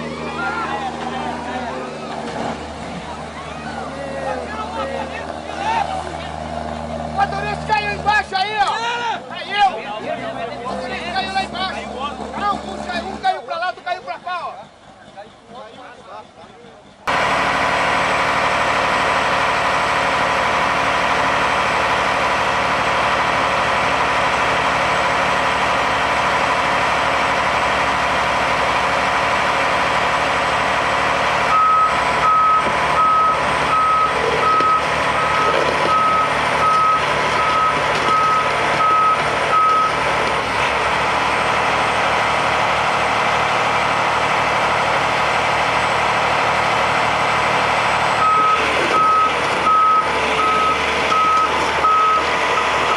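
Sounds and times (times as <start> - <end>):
truck engine running: 0.0 - 52.9
reversing alarm beeping: 31.5 - 40.0, 48.2 - 52.9.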